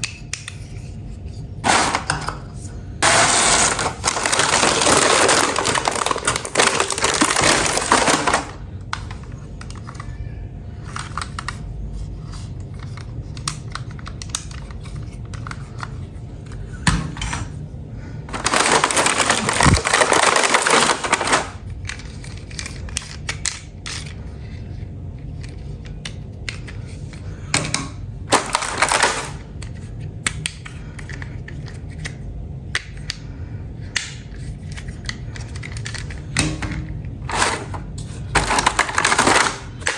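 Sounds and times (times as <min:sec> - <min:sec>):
plastic pieces clicking and clattering: 0:01.6 - 0:02.4, 0:03.0 - 0:10.1, 0:10.8 - 0:11.6, 0:18.3 - 0:24.2, 0:25.3 - 0:32.2, 0:33.9 - 0:39.9
crinkling rustling noise: 0:03.0 - 0:10.0, 0:18.3 - 0:25.9, 0:28.3 - 0:30.0, 0:37.2 - 0:39.9.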